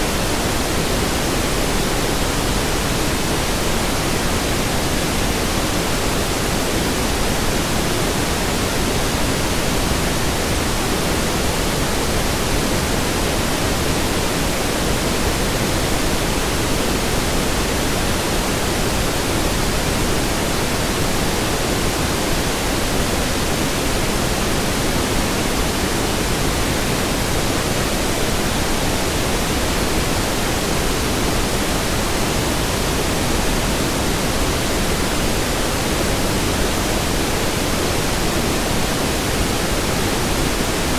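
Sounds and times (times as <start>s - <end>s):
pink noise hiss: 0.0s - 40.9s.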